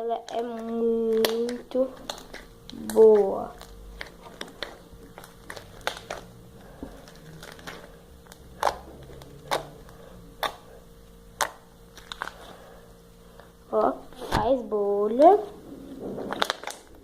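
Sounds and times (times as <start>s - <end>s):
slime squished in hands: 0.3s - 6.4s, 7.0s - 10.7s.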